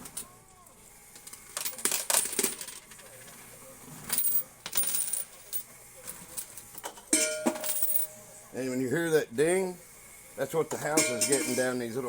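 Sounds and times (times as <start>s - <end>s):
coins clattering in arcade machine: 1.1s - 8.3s, 10.9s - 11.9s.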